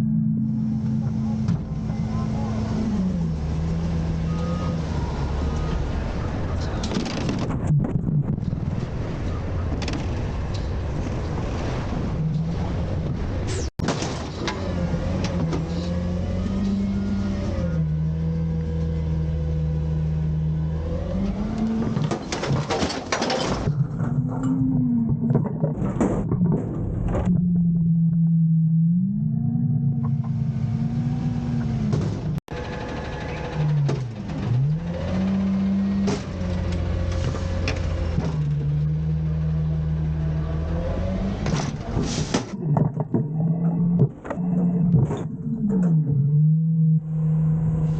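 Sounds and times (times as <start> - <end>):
bin and arm clanking: 21.8 - 24.2
garbage truck diesel engine revving: 28.4 - 42.6.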